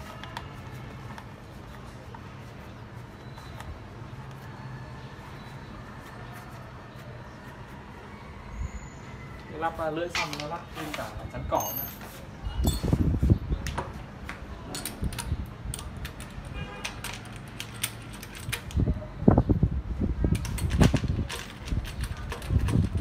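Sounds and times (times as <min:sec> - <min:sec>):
metal tools clinking and knocking: 0:10.1 - 0:13.0.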